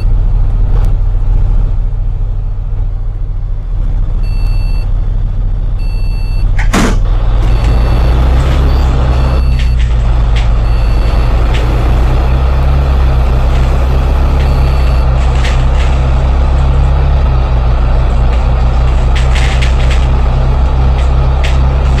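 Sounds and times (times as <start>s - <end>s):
bus engine droning: 0.0s - 22.0s
bus body rattle: 6.4s - 22.0s
sharp clicks or clanks: 6.5s - 17.2s, 17.8s - 22.0s.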